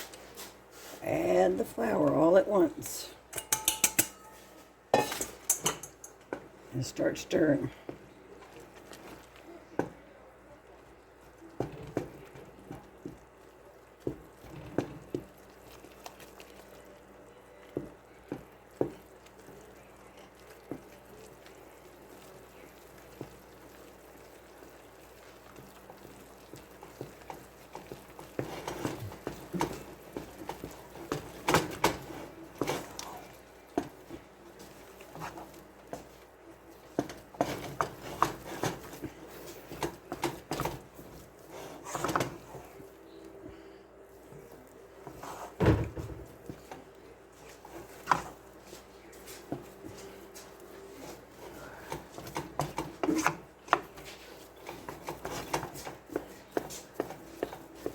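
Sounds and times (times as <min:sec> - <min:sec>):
spoon stirring thick paste: 0:00.0 - 0:57.9
spoon knocking against pan: 0:03.3 - 0:04.4.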